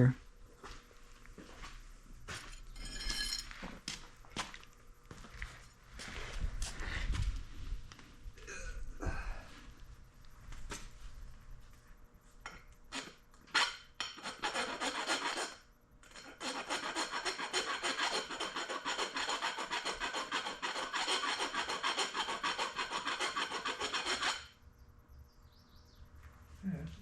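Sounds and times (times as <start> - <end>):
hand file rasping on metal: 12.9 - 24.6.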